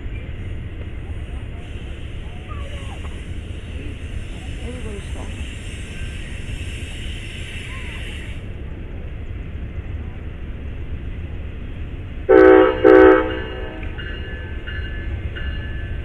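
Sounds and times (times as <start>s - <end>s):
train rumbling: 0.0s - 16.0s
train horn blasts: 12.3s - 14.5s.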